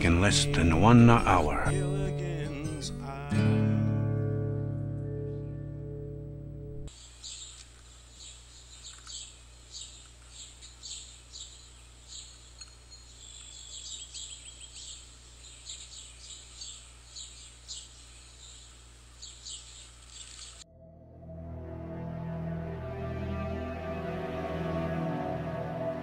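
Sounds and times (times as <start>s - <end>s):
birds chirping: 6.9s - 20.6s.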